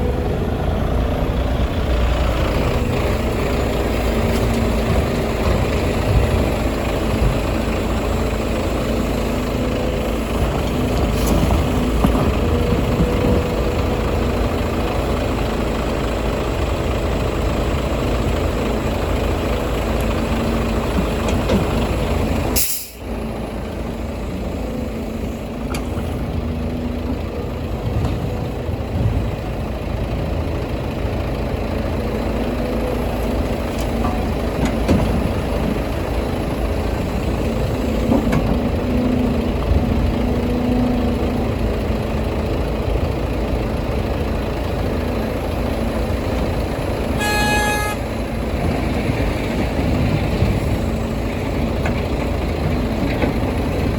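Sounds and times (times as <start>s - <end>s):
heavy diesel engines running: 0.0s - 53.9s
short high horn toot: 47.2s - 48.1s.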